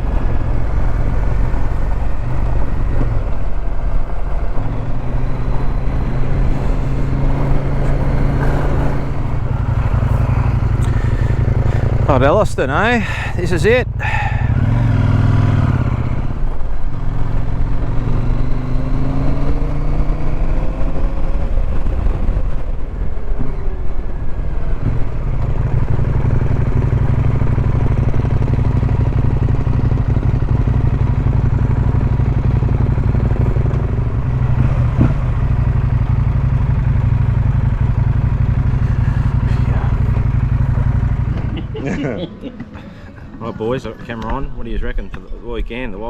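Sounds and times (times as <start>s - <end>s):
motorcycle engine running: 0.0s - 44.4s.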